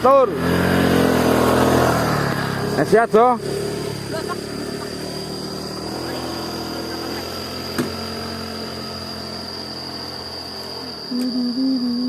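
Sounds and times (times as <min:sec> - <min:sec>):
motorcycle engine idling: 0:02.4 - 0:11.1
person humming: 0:11.1 - 0:12.0.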